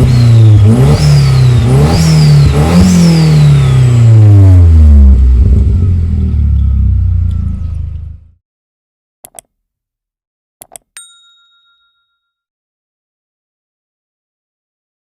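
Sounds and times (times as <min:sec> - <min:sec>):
car engine revving: 0:00.0 - 0:08.3
car engine idling: 0:05.2 - 0:08.3.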